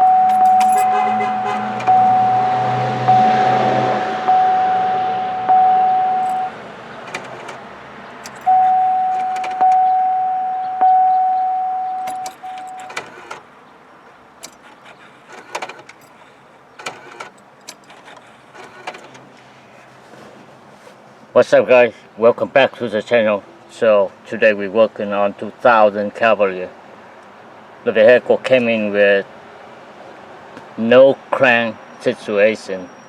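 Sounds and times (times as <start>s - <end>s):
light clicks and metallic rattles: 0.0s - 1.9s, 6.1s - 9.9s, 11.9s - 20.0s.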